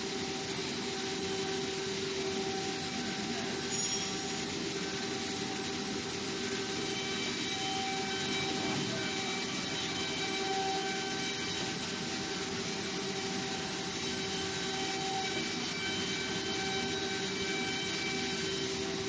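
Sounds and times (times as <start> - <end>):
printing machine hum and hiss: 0.0 - 19.0.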